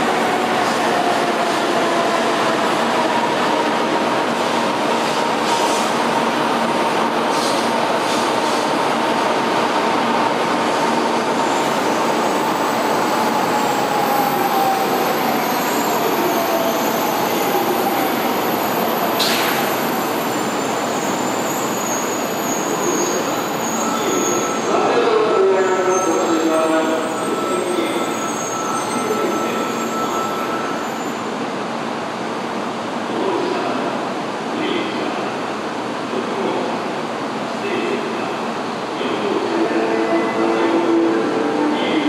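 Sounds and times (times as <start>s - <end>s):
short clack: 19.2s - 19.6s
high squeals: 25.8s - 31.2s.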